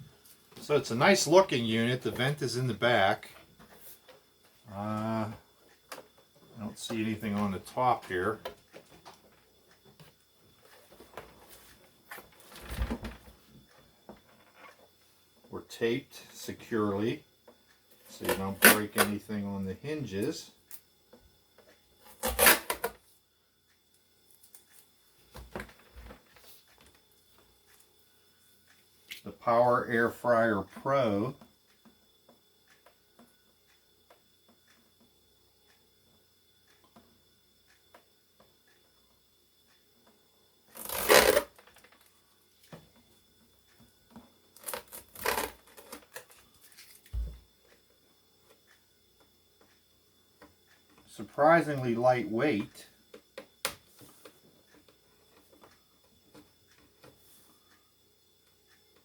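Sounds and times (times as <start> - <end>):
dull thump: 47.1 - 47.4.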